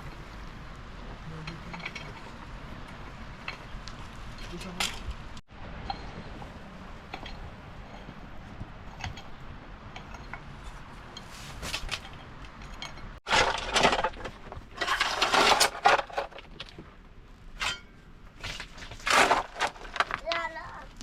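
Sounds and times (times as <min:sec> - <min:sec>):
rough scraping and crunching: 0:06.9 - 0:21.0.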